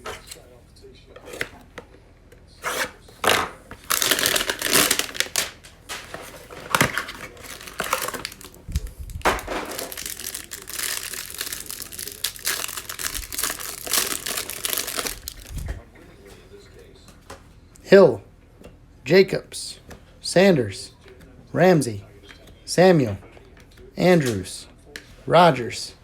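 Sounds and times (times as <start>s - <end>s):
cardboard tearing: 2.6s - 15.6s
plastic wrapping crinkling: 3.2s - 15.8s.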